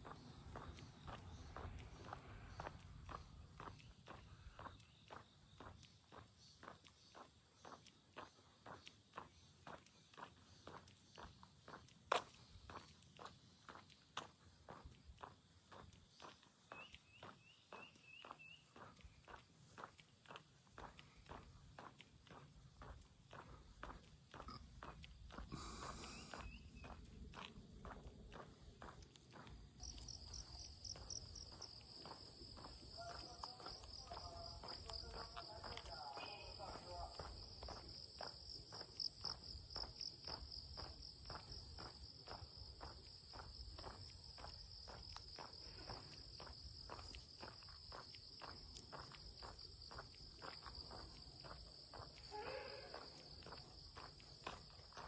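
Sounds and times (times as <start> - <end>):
footsteps on a path: 0.0 - 55.0
forest insects droning: 20.7 - 55.0
short call: 52.2 - 53.3.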